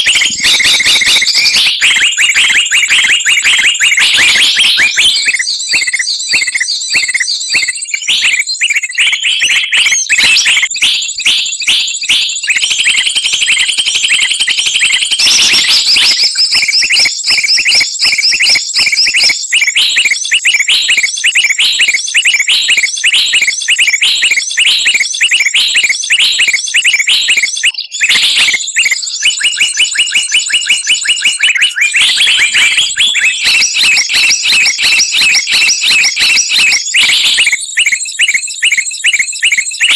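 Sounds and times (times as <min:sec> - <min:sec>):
thin high whistle-like tone: 0:00.0 - 0:08.9
songbirds chirping and trilling: 0:00.0 - 0:39.9.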